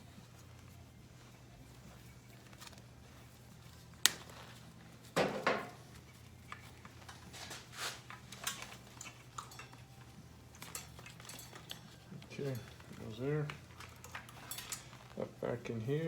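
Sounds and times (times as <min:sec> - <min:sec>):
rustling: 0:00.0 - 0:16.0
steady low hum: 0:00.0 - 0:16.0
metal tools clicking and knocking: 0:05.1 - 0:15.3.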